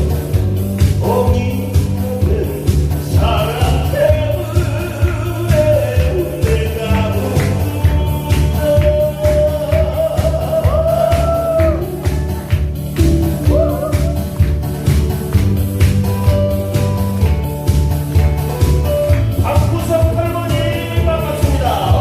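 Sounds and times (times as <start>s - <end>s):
amplified backing track with bass beat: 0.0s - 22.0s
person singing: 0.9s - 14.4s, 19.4s - 22.0s.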